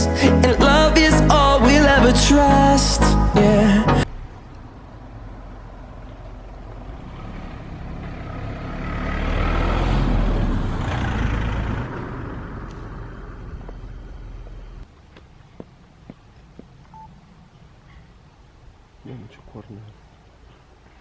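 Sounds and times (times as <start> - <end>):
road vehicle passing: 4.0 - 14.8.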